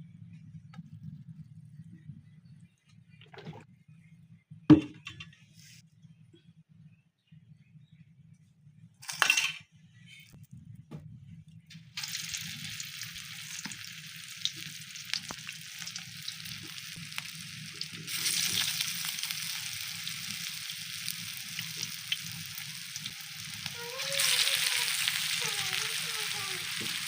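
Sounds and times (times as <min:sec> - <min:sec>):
food sizzling in oil: 0:11.8 - 0:27.0.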